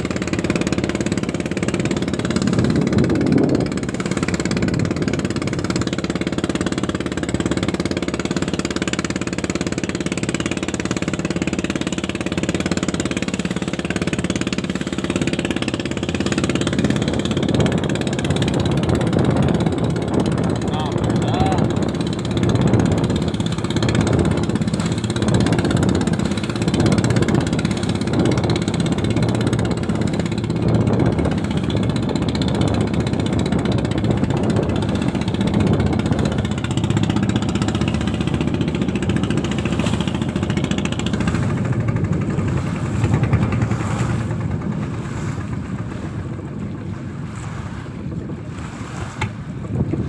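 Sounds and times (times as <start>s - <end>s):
boat engine running: 0.0s - 50.0s.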